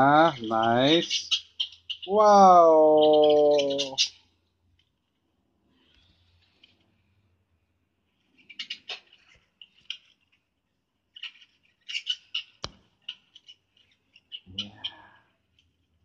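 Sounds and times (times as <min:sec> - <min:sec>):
birds chirping and squawking: 0:00.0 - 0:16.0
low voice-like sound: 0:02.1 - 0:04.1, 0:14.5 - 0:15.2.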